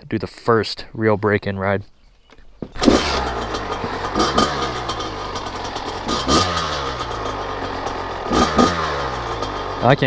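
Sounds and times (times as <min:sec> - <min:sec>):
two-stroke engine idling and revving: 0:02.7 - 0:10.0.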